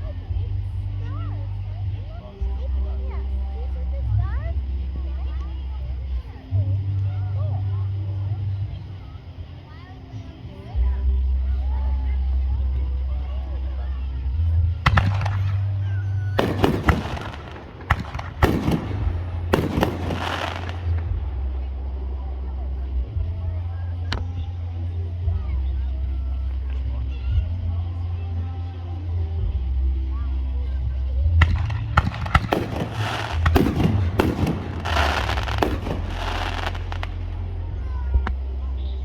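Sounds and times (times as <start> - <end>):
low rumble: 14.4 - 28.0, 29.3 - 38.8
fireworks crackling: 14.8 - 23.4, 31.4 - 38.5
fireworks shells bursting: 14.9 - 15.8, 16.4 - 21.3, 31.4 - 37.4.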